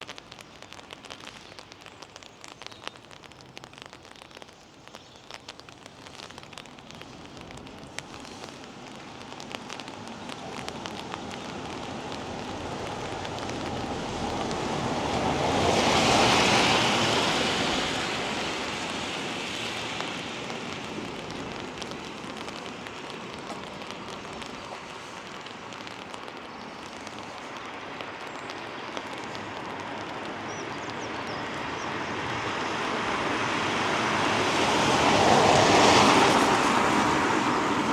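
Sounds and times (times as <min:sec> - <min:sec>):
drip ticks: 0:00.0 - 0:15.2, 0:19.9 - 0:31.6
rain pattering: 0:00.0 - 0:37.9
tyres hissing on wet road: 0:00.0 - 0:37.9.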